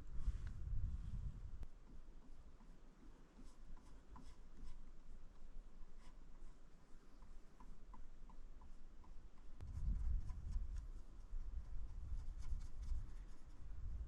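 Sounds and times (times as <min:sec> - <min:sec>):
paintbrush strokes on canvas: 0:00.0 - 0:13.9.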